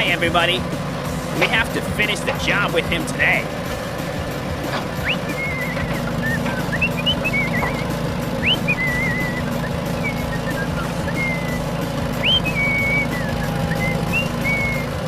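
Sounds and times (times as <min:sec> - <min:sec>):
vehicle engine drone: 0:00.0 - 0:15.0
high whistling chirps: 0:04.8 - 0:15.0.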